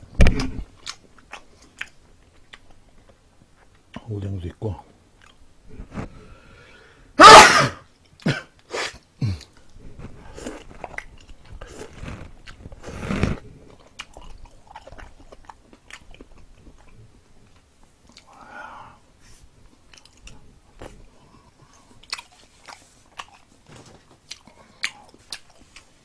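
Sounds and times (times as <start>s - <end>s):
wet chewing: 0.8s - 4.1s, 9.3s - 18.4s, 19.7s - 26.0s.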